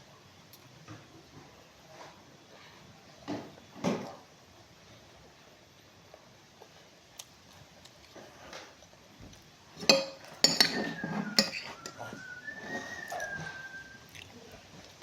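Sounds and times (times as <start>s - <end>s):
cutlery and dishes clinking: 9.8s - 12.2s.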